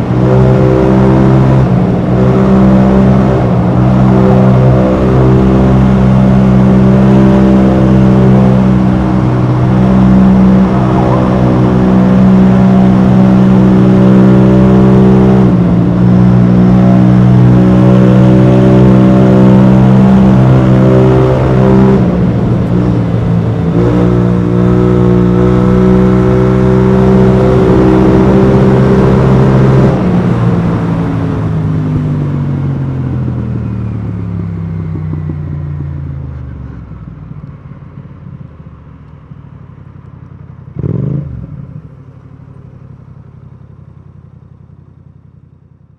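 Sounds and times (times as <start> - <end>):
scooter engine revving: 0.0 - 32.1.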